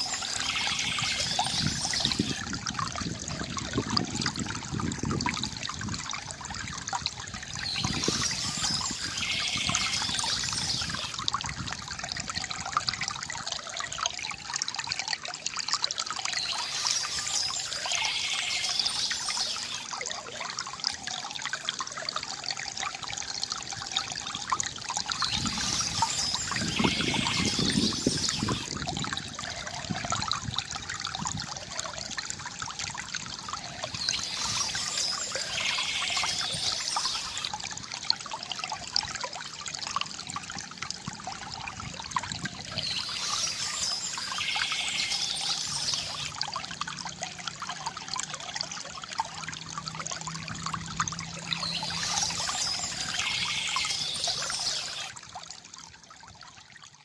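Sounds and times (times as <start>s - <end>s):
bird chirp: 0.0s - 2.4s, 7.6s - 11.1s, 25.1s - 28.7s, 33.6s - 37.5s, 42.7s - 46.3s, 51.5s - 55.1s
fountain water trickling: 0.0s - 57.0s.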